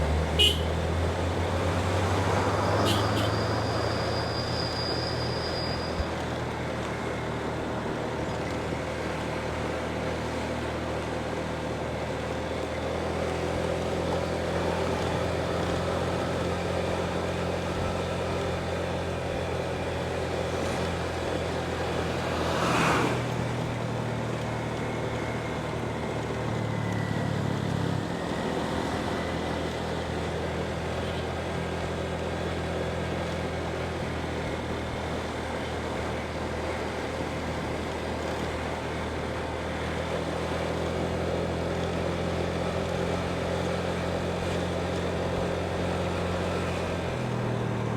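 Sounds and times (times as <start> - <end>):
motorbike engine running: 0.0 - 4.2
road and wind noise: 0.0 - 47.9.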